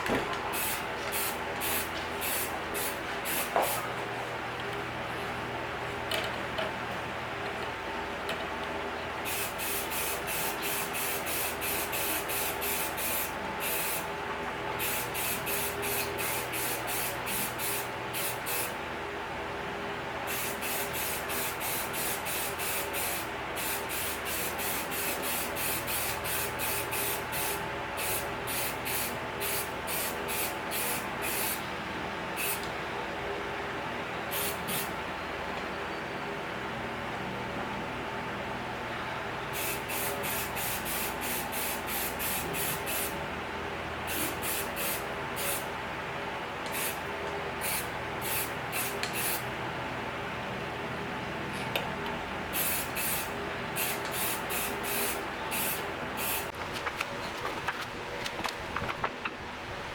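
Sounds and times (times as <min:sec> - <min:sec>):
steady hum: 0:00.0 - 0:59.9
aerosol spray bursts: 0:00.6 - 0:03.8, 0:09.3 - 0:14.0, 0:14.8 - 0:18.7, 0:52.6 - 0:56.5.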